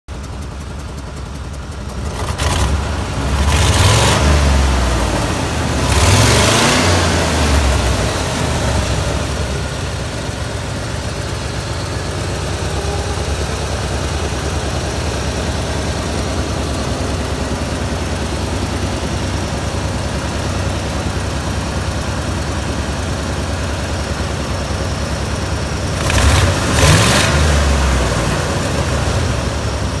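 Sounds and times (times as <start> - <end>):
truck engine idling and revving: 0.1 - 30.0.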